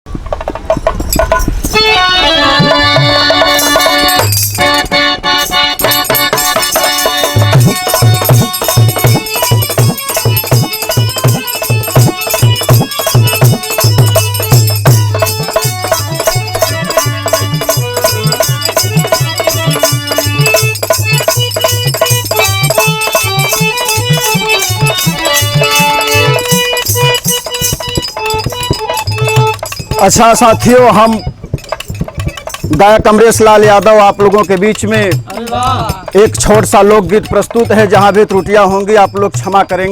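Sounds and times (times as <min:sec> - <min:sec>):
low hand drum beat: 0:00.1 - 0:05.0, 0:05.8 - 0:39.9
jingling percussion: 0:00.1 - 0:39.9
sustained melody line: 0:00.7 - 0:39.9.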